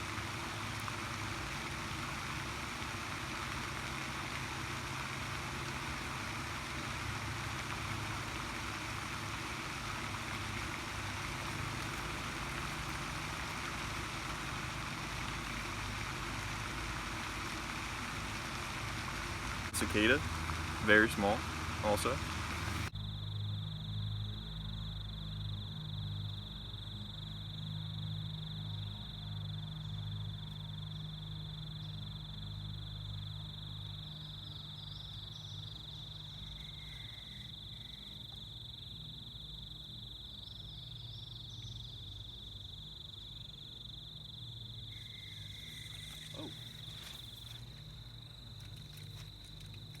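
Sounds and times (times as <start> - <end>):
low steady hum: 0.0 - 25.0
cicadas droning: 0.0 - 50.0.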